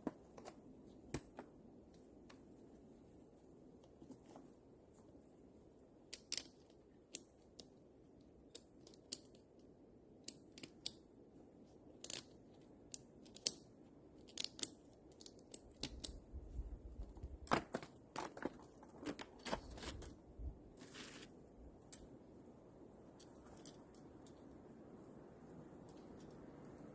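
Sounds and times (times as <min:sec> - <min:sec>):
wind rumble on microphone: 0:15.9 - 0:17.5, 0:19.7 - 0:20.8.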